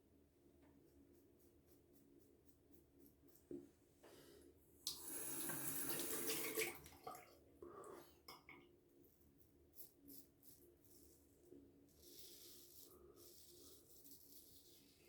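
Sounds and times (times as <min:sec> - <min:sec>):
sink tap running: 0:04.9 - 0:06.7.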